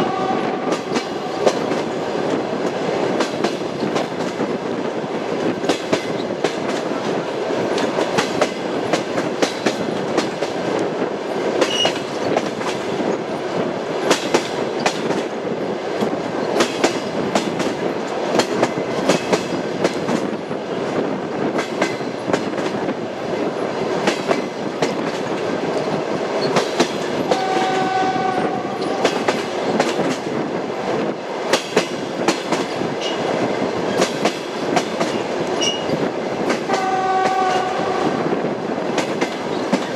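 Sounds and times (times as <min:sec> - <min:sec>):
train wheels clickety-clack: 0:00.0 - 0:39.9.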